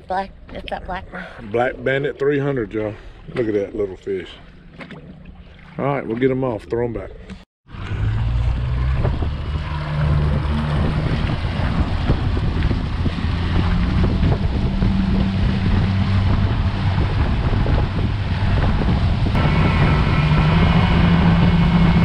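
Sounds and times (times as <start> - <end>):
rushing water: 1.4 - 7.0, 7.7 - 22.0
outboard motor running: 2.7 - 22.0
wind buffeting microphone: 7.7 - 22.0.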